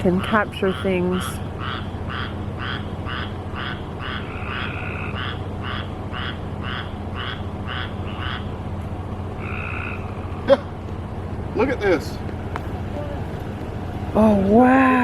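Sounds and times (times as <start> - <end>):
low steady hum: 0.0 - 15.0
frogs calling in chorus: 0.1 - 8.6, 9.4 - 10.8.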